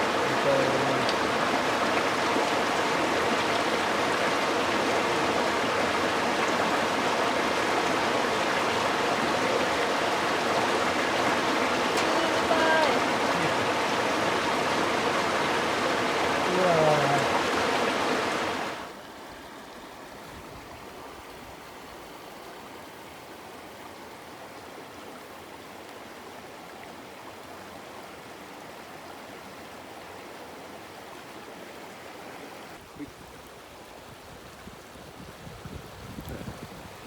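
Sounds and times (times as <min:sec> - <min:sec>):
river water murmuring: 0:00.0 - 0:37.0.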